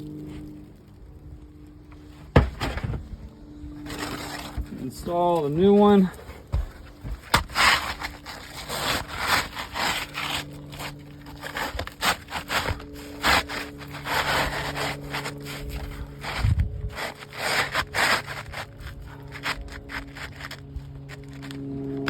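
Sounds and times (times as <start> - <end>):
roof shingles scraping: 0.2 - 22.0
sharp knocks: 2.3 - 3.1.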